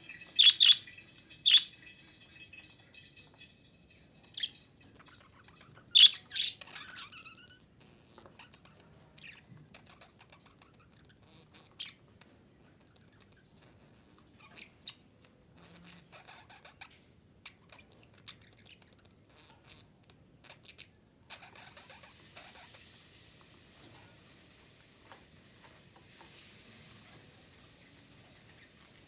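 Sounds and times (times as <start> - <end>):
steady hiss: 0.0 - 4.6, 21.5 - 29.0
budgerigar chirps and clicks: 0.4 - 0.8, 1.4 - 1.7, 4.4 - 7.6.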